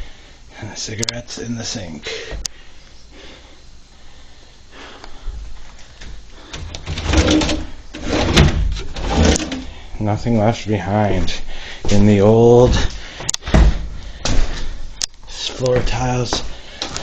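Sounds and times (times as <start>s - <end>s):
scraping: 6.5s - 9.9s.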